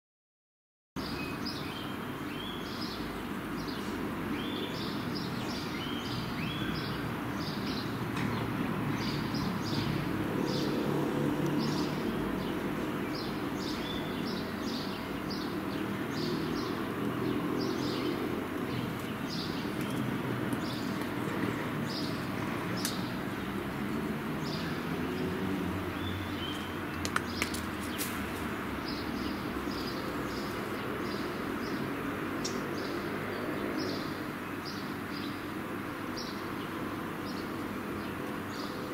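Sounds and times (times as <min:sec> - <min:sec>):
sharp clicks: 0:26.5 - 0:27.9.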